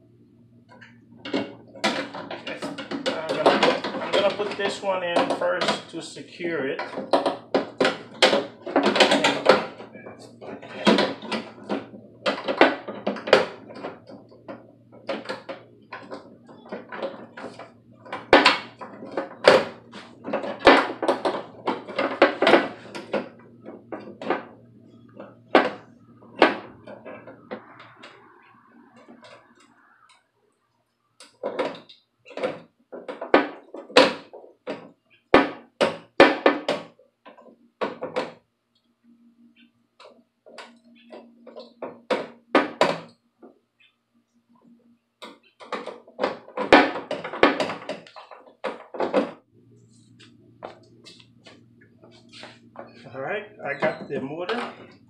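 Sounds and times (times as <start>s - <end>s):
low steady hum: 0.0s - 55.0s
metal clunks and knocks: 0.8s - 6.0s, 6.7s - 30.2s, 31.2s - 38.4s, 45.2s - 49.5s.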